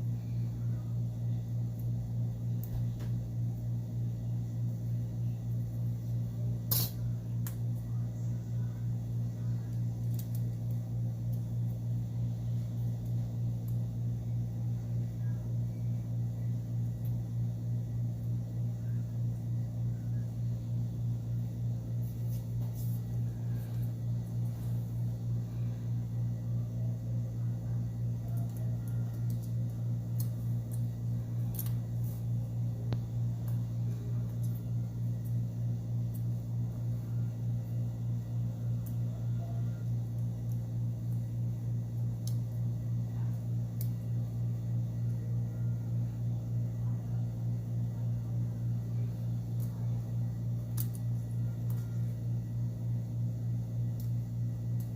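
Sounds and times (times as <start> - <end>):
low pulsing mechanical hum: 0.0 - 54.9
faint small clicks: 53.9 - 54.2.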